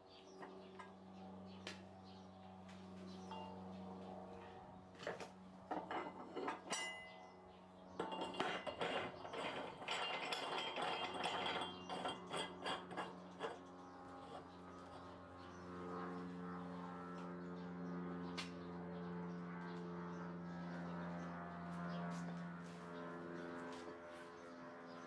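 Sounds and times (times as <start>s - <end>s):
metal clinking and knocking: 8.0s - 13.6s.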